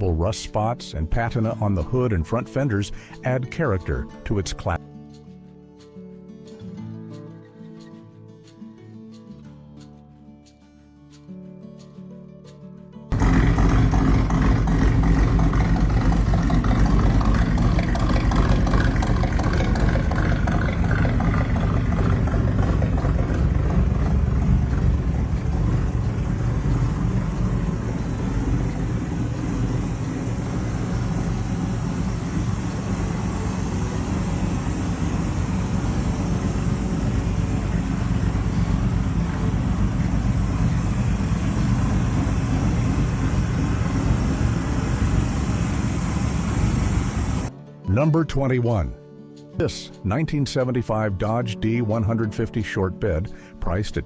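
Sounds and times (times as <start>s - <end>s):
car engine running: 13.1s - 47.5s.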